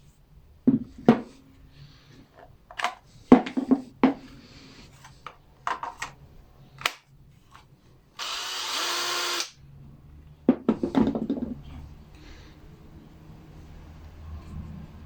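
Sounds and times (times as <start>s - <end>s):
power tool running: 8.2s - 9.6s
tool knocking when handled: 10.5s - 11.6s.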